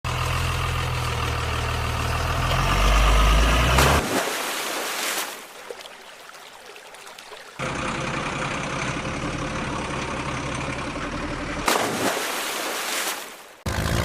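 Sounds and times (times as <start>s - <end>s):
heavy engine humming: 0.1s - 4.0s, 7.5s - 11.7s, 13.7s - 14.0s.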